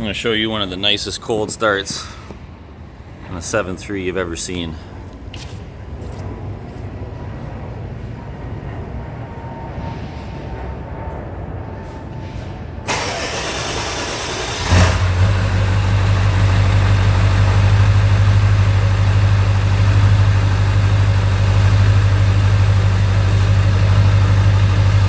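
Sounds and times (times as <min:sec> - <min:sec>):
diesel engine idling: 0:12.9 - 0:25.0
starter motor cranking: 0:12.9 - 0:25.0.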